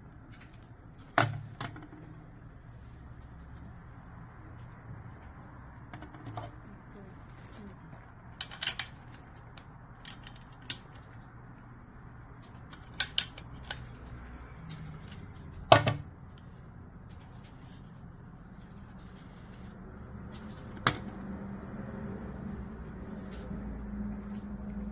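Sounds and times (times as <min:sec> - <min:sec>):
plastic parts clicking and clacking: 0:08.3 - 0:11.4, 0:12.4 - 0:16.5.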